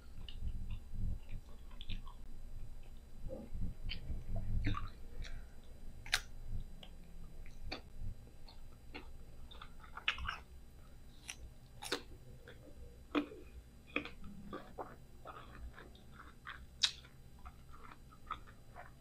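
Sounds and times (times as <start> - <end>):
crisp crunches of chewing: 11.1 - 19.0.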